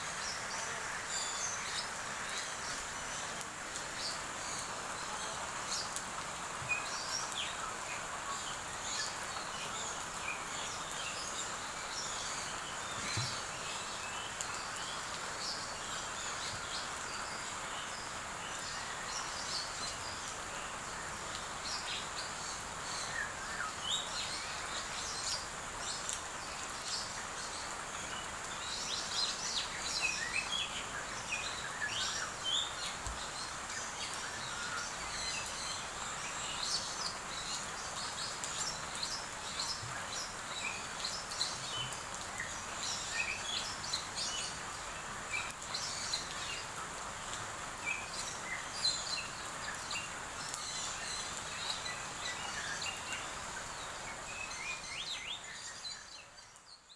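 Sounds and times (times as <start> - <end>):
small birds chirping: 0.0 - 56.9
steady hiss: 0.0 - 56.9.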